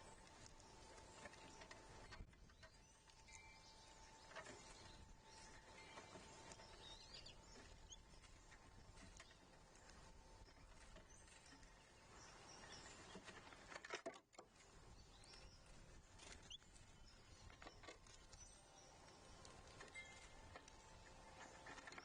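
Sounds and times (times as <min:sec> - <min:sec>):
faint bird chirps: 0:00.0 - 0:13.6, 0:14.8 - 0:22.0
light taps and scratches: 0:04.2 - 0:11.8.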